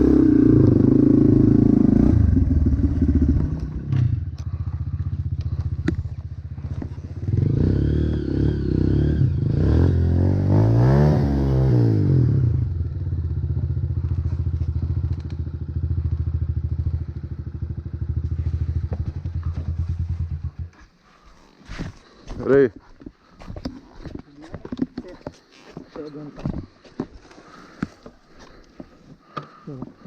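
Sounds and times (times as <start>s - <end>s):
motocross bike engine revving: 6.6s - 12.7s.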